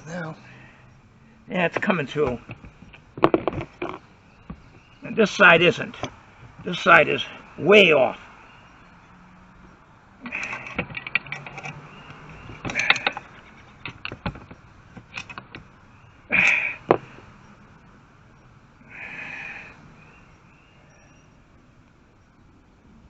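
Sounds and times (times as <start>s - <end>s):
sharp clicks and knocks on metal: 1.7s - 4.8s, 10.3s - 15.7s
short scraping rasps: 10.2s - 14.2s.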